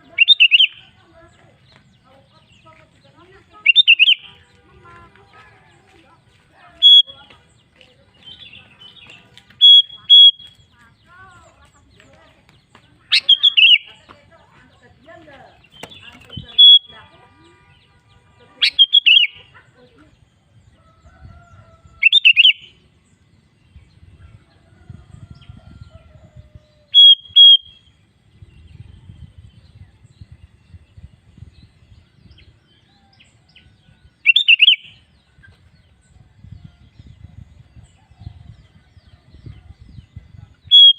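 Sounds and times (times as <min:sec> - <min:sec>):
bulbul bubbly calls: 0:00.0 - 0:00.8.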